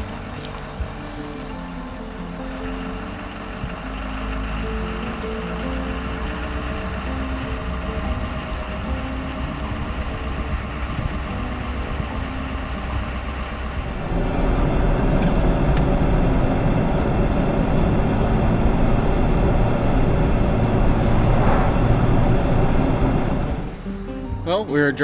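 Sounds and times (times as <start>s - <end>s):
road and wind noise: 0.0s - 24.4s.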